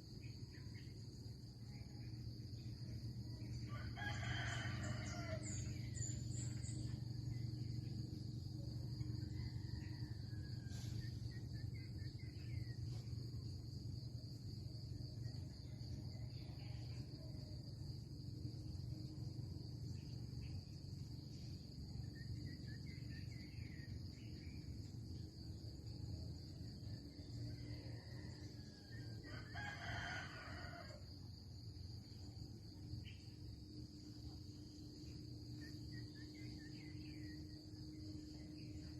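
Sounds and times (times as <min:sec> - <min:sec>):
low steady rumble: 0:00.0 - 0:29.6
insects chirring: 0:00.0 - 0:38.9
rooster crowing: 0:03.5 - 0:06.5, 0:27.6 - 0:31.4.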